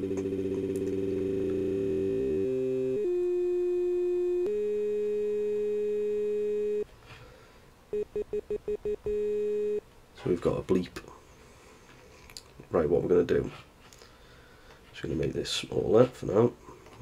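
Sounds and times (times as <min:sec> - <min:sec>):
looped voice buzzing tone: 0:00.0 - 0:06.8
electronic bleep: 0:07.9 - 0:09.8.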